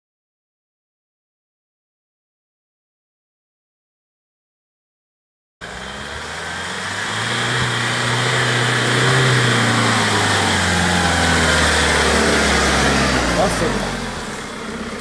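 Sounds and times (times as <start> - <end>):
diesel engine driving off-road: 5.6 - 15.0.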